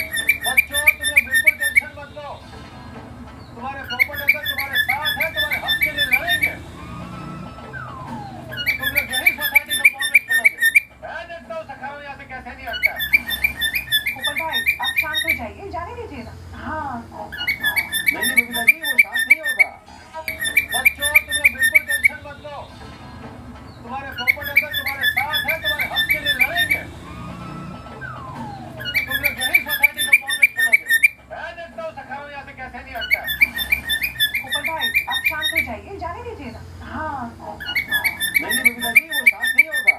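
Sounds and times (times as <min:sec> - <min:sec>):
cockatiel sharp chirps: 0:00.0 - 0:02.8, 0:03.4 - 0:11.0, 0:12.7 - 0:15.5, 0:17.3 - 0:23.0, 0:23.7 - 0:31.3, 0:32.9 - 0:35.8, 0:37.6 - 0:39.9
cockatiel whistling: 0:00.0 - 0:11.0, 0:12.5 - 0:15.6, 0:17.3 - 0:31.3, 0:32.8 - 0:35.8, 0:37.6 - 0:39.9.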